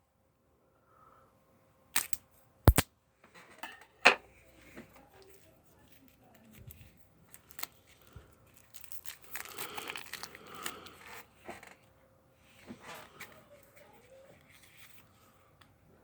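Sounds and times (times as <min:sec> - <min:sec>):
packaging clicks: 0:02.0 - 0:02.8
packaging crinkling and tearing: 0:02.0 - 0:02.8, 0:07.3 - 0:11.1.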